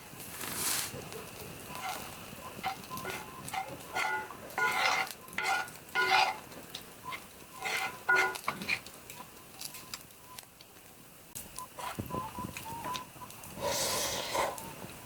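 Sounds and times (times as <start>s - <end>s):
metal utensil scraping a pan: 1.7s - 8.9s.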